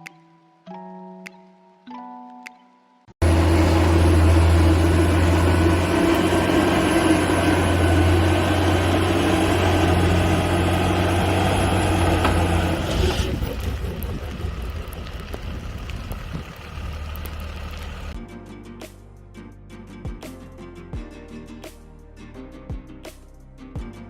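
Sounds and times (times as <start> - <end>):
vehicle engine drone: 3.2 - 18.2.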